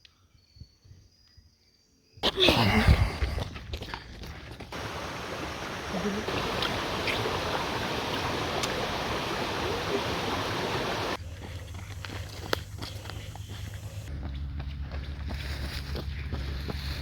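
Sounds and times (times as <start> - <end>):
rushing water: 4.7 - 11.2.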